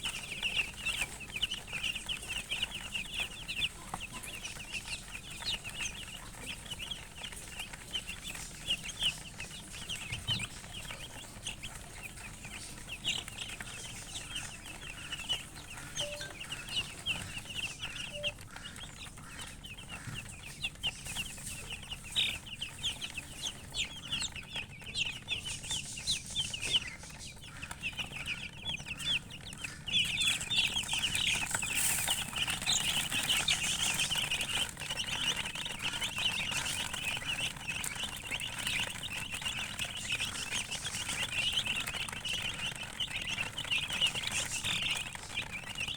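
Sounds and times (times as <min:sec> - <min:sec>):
chicks peeping: 0:00.0 - 0:45.9.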